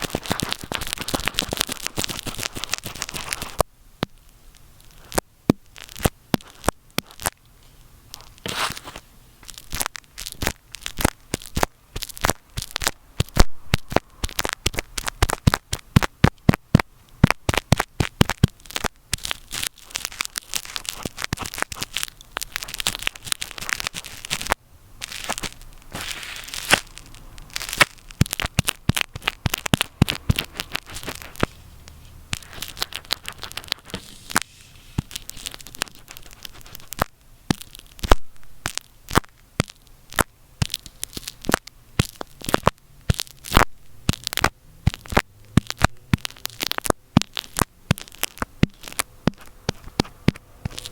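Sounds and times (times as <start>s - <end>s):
rough scratching and rubbing: 0.0s - 3.6s, 8.2s - 13.4s, 17.5s - 38.2s, 40.6s - 50.9s
sharp clicks and crackles: 0.0s - 50.9s.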